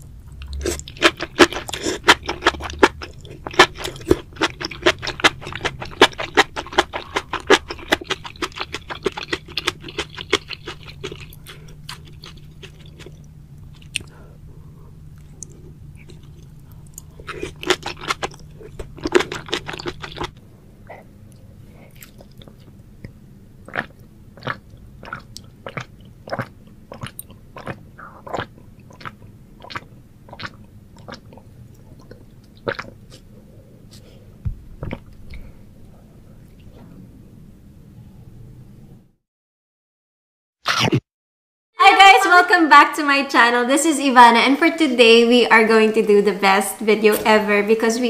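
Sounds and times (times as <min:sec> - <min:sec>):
wet chewing and biting: 0:00.3 - 0:14.1, 0:15.1 - 0:21.0, 0:21.9 - 0:35.5.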